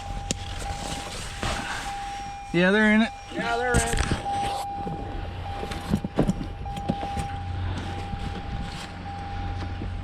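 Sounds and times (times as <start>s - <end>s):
faint steady whine: 0.0s - 10.0s
truck engine running: 0.0s - 10.0s.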